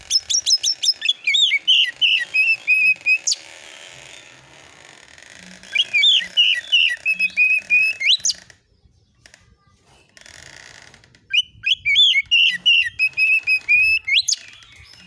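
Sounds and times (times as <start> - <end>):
bird singing whistled notes: 0.1 - 3.4, 5.7 - 8.5, 11.3 - 15.0.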